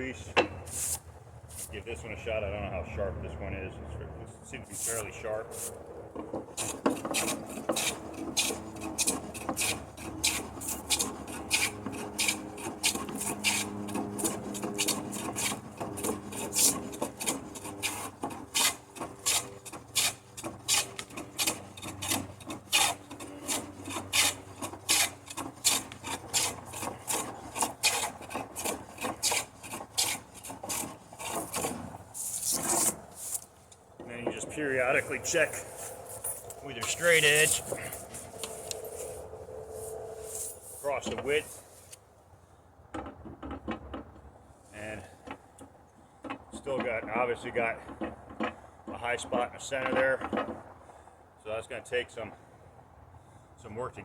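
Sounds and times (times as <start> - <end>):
hand plane shaving wood: 4.7 - 33.5, 34.7 - 42.0.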